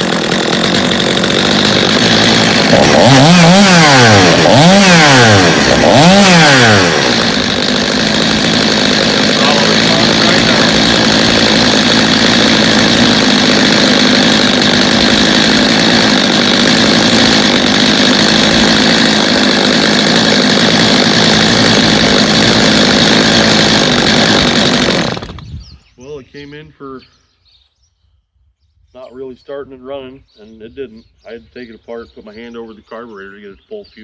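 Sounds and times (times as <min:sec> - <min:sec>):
chainsaw engine running: 0:00.0 - 0:25.6.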